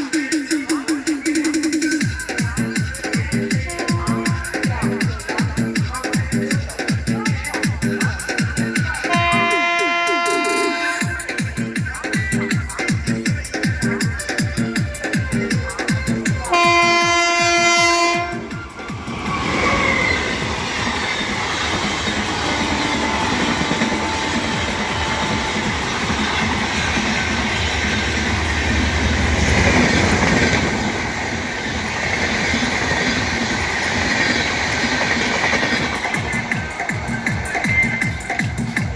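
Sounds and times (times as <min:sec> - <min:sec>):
passenger train passing: 0:00.0 - 0:38.9
train wheels clickety-clack: 0:00.1 - 0:38.9
locomotive horn blast: 0:09.1 - 0:11.1, 0:16.5 - 0:18.6.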